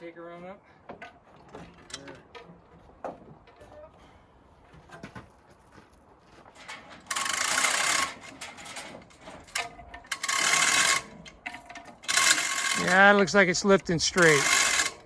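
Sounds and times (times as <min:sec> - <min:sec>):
hoist whirring and rattling: 0:06.6 - 0:15.0.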